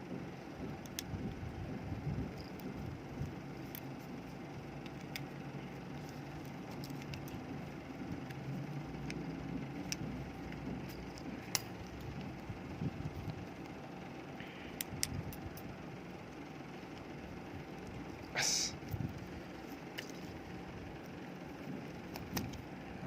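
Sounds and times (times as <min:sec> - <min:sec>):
low background rumble: 0:00.0 - 0:23.0.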